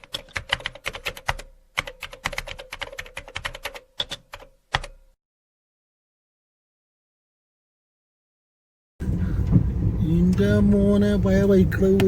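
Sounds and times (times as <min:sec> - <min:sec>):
rapid typing clicks: 0:00.0 - 0:04.9.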